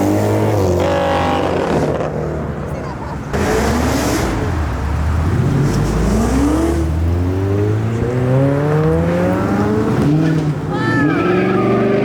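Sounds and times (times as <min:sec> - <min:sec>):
car engine accelerating hard: 0:03.3 - 0:12.0.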